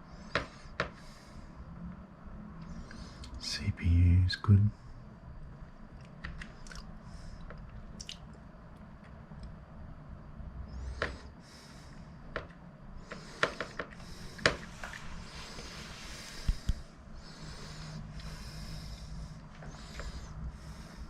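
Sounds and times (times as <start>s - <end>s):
low steady hum: 0.0s - 21.0s
soft breathy hisses: 13.1s - 21.0s.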